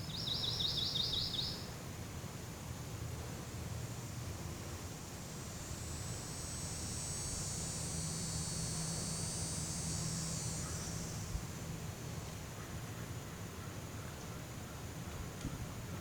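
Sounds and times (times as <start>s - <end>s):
high hissing insect drone: 4.1s - 11.9s.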